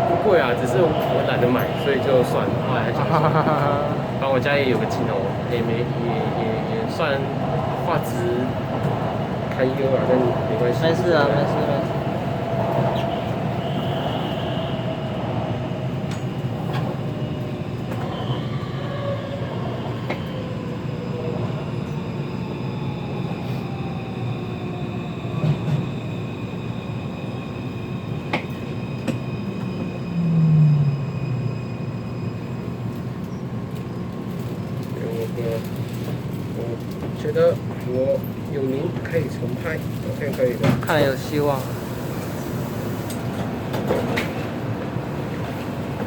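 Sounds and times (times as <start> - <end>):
train wheels rumbling on rail: 0.0 - 46.0
faint high whining: 10.6 - 33.4.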